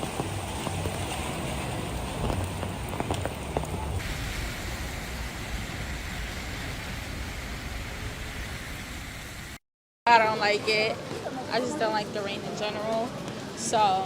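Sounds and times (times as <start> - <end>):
heavy rain splashing: 0.0 - 9.6
low rumble: 0.0 - 9.6.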